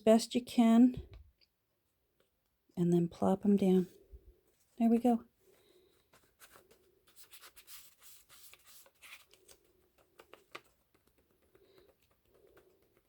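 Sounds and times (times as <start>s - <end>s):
paper rustling: 5.5s - 13.0s.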